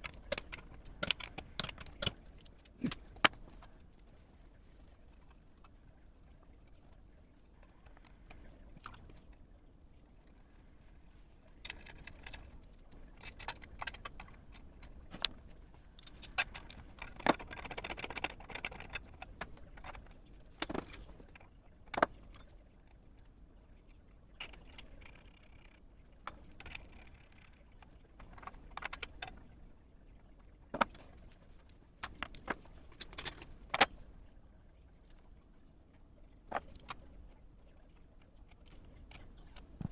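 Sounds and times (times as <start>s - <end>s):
metal tools clinking: 32.0s - 34.0s.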